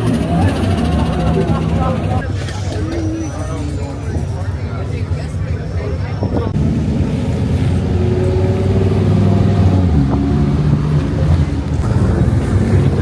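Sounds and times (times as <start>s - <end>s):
car engine and exhaust running: 0.0s - 2.2s, 6.6s - 13.0s.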